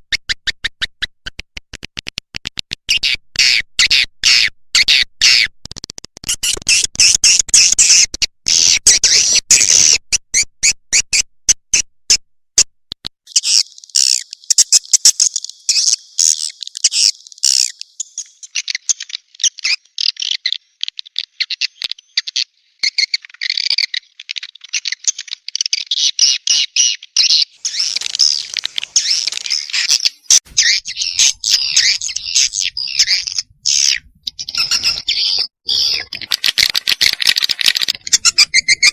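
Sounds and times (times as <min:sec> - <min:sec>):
swiftlets chirping and twittering: 0:27.6 - 0:38.9
short clicks: 0:35.9 - 0:38.6.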